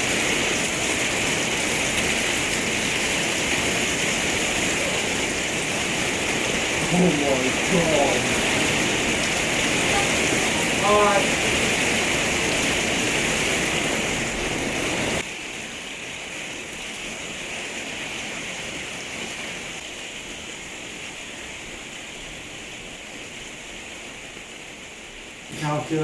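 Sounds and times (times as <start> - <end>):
torrential rain hissing: 0.0 - 26.0.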